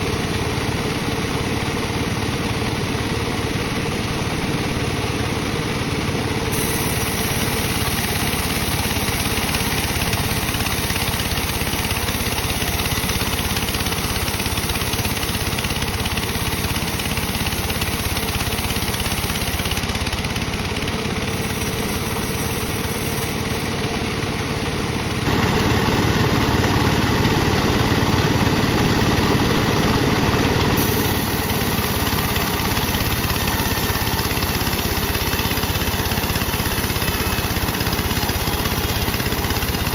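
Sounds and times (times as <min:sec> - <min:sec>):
bandsaw slicing wood: 0:06.5 - 0:23.8, 0:29.9 - 0:39.9.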